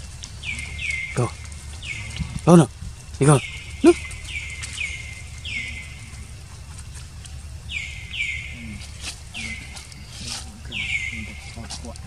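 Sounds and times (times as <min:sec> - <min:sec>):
low background hum: 0:00.0 - 0:12.0
bird chirps falling in pitch: 0:03.3 - 0:06.2, 0:07.7 - 0:10.1, 0:10.7 - 0:11.7.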